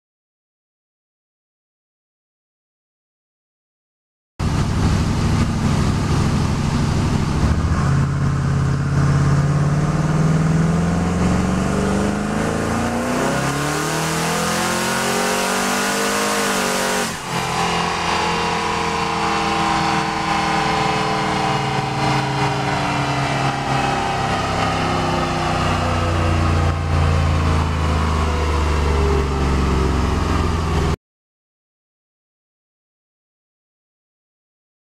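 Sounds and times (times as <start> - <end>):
car engine at full throttle: 4.4 - 31.0
dyno rollers winding down: 16.2 - 31.0.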